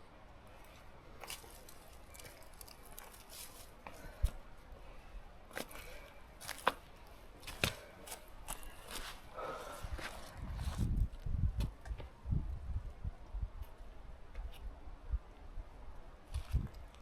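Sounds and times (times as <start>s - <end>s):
footsteps crunching on trail: 0.7s - 4.4s, 5.5s - 11.0s.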